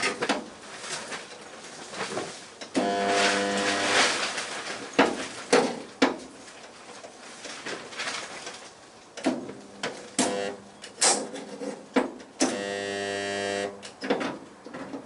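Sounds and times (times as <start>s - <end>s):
spot welder electrical buzz: 2.7s - 4.5s, 10.2s - 10.8s, 12.4s - 14.0s.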